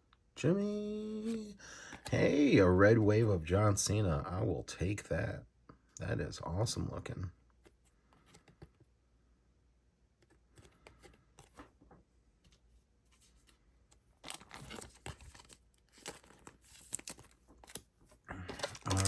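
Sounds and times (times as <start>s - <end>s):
trading cards rustling: 1.1s - 2.4s, 10.2s - 19.0s.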